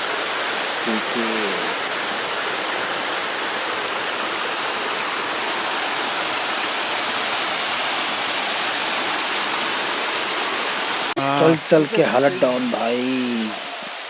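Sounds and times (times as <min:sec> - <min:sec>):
waterfall crashing: 0:09.5 - 0:14.0.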